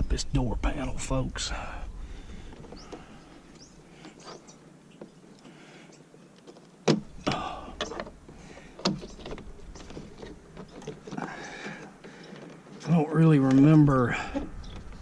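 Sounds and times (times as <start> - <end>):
light clicks and rustle: 2.3 - 13.8.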